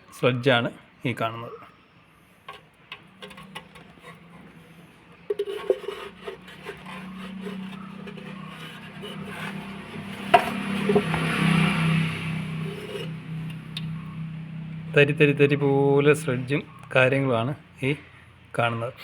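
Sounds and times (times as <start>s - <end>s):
scraping sludge from metal pan: 2.5s - 13.5s.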